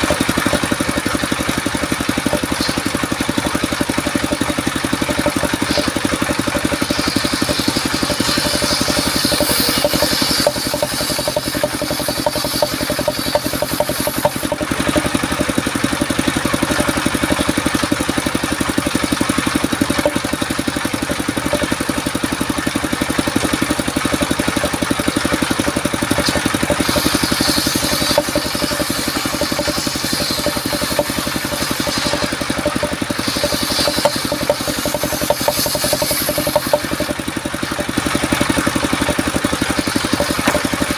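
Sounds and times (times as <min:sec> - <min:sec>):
sawmill engine running: 0:00.0 - 0:40.9
high hissing noise: 0:07.2 - 0:14.4, 0:33.2 - 0:37.1.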